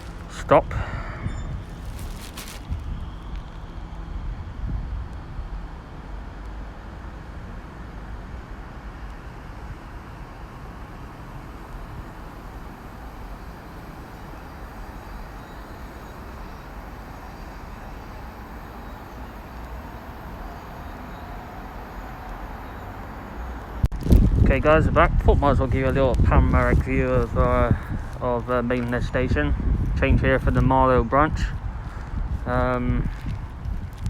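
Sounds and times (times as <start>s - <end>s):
electric train rumble: 0.0s - 30.0s.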